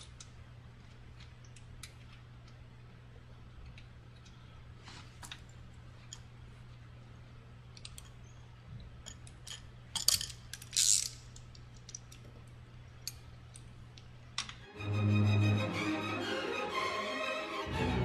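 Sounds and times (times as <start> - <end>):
metallic clicks of wrench on bolts: 9.0 - 12.3.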